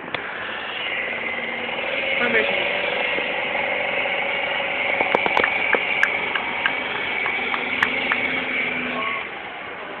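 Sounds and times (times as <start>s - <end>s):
truck engine running: 0.0s - 10.0s
sharp clicks and knocks: 4.9s - 8.8s.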